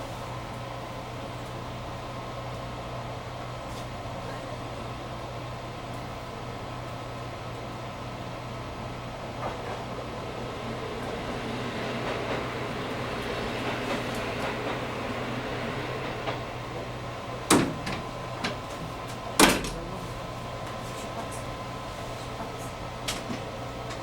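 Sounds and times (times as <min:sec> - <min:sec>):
railcar running hum: 0:00.0 - 0:24.0
sharp knocks: 0:17.5 - 0:19.8.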